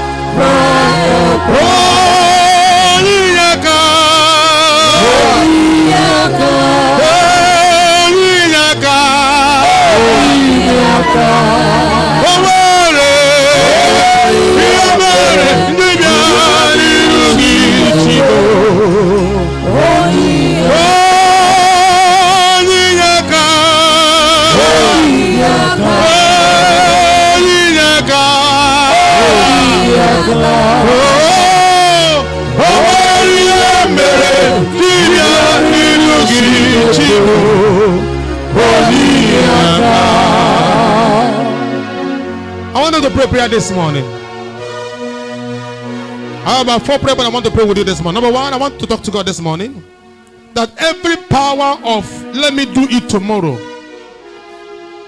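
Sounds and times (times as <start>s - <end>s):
person singing with vibrato: 0.0s - 42.8s
gospel instrumental backing: 0.0s - 55.0s.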